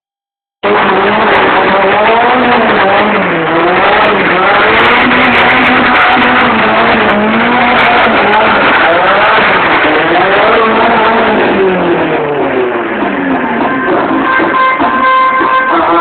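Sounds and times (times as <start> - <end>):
car engine revving hard: 0.6 - 16.0.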